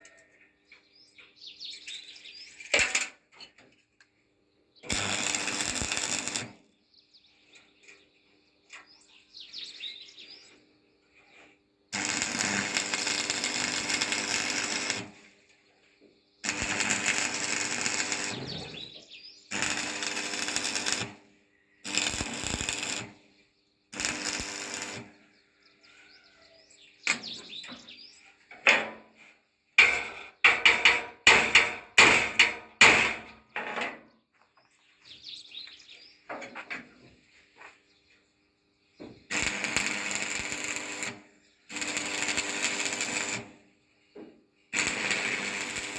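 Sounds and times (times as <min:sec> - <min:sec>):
power tool working metal: 0:16.5 - 0:18.9, 0:39.3 - 0:43.5, 0:44.8 - 0:45.9.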